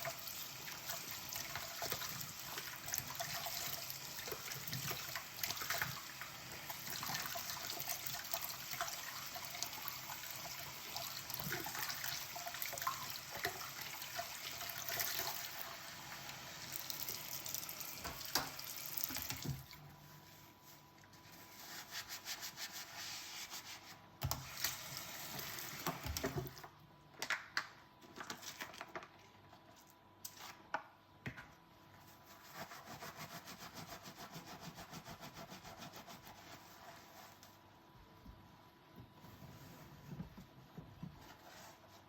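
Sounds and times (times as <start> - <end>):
sponge scrubbing dishes: 19.0 - 24.0, 32.0 - 37.5.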